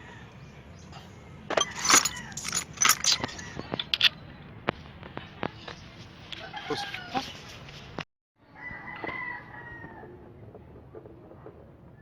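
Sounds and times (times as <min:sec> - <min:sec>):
small metal objects clinking: 0:01.5 - 0:04.2.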